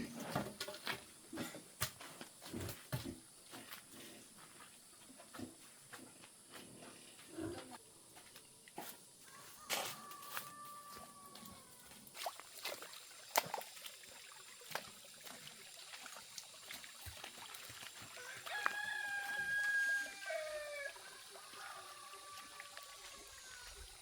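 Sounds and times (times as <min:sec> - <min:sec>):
rooster crowing: 0:09.2 - 0:11.9, 0:18.2 - 0:23.8.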